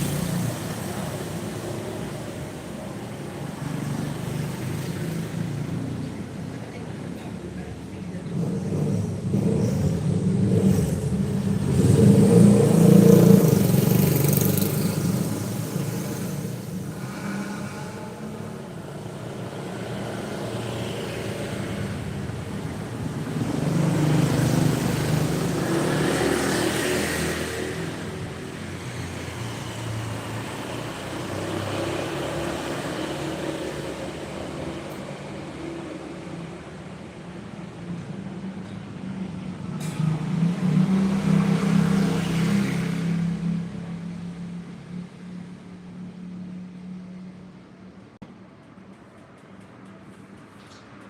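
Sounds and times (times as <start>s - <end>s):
motor vehicle passing: 8.4s - 35.4s.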